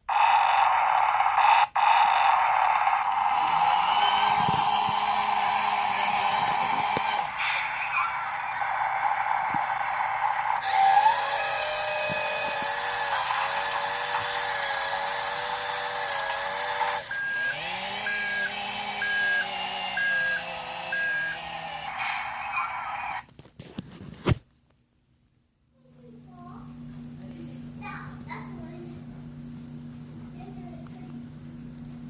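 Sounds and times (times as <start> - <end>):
toy power tool whirring: 0.1 - 23.3
electronic beeps: 17.1 - 23.1.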